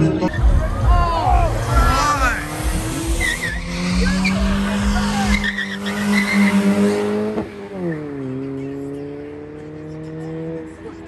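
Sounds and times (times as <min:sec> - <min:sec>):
car engine at high revs: 0:00.0 - 0:11.0
tyres squealing: 0:01.2 - 0:07.0.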